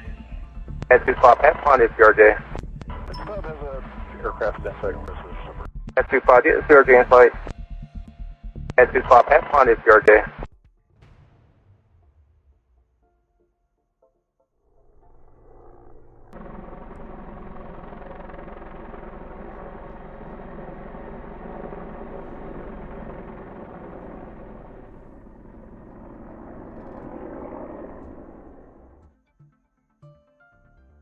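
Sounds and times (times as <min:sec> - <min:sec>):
helicopter rotor and engine drone: 0:00.0 - 0:08.0, 0:08.8 - 0:10.3, 0:15.0 - 0:29.0.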